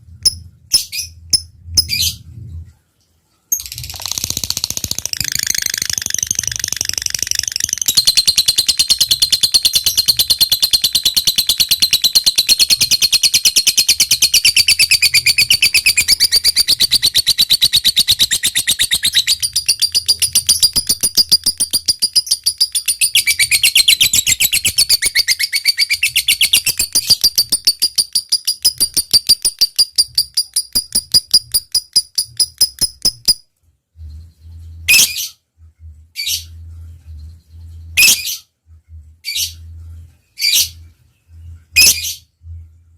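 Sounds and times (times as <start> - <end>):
lovebird chattering: 3.6 - 33.4.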